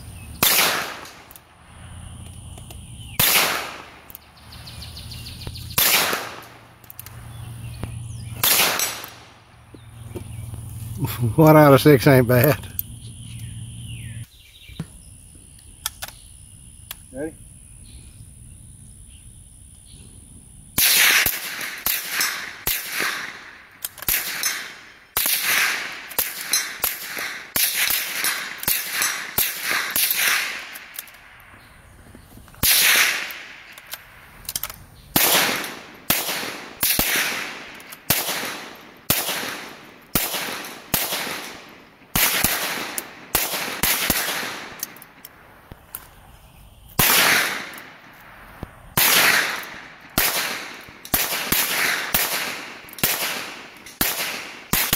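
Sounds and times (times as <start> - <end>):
rifle gunshots: 0.4 - 1.3, 3.2 - 4.1, 5.7 - 6.7, 8.4 - 9.4, 20.8 - 31.0, 32.6 - 33.8, 35.1 - 45.2, 47.0 - 47.9, 49.0 - 54.9.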